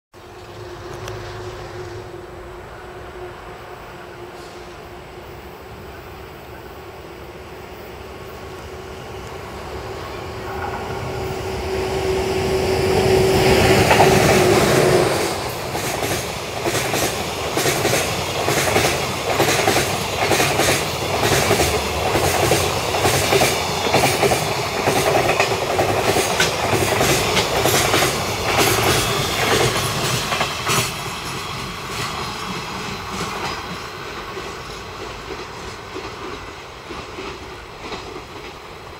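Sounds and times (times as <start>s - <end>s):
electric locomotive steady tone: 0.2s - 38.9s
train wheels clattering over rail joints: 13.6s - 38.7s.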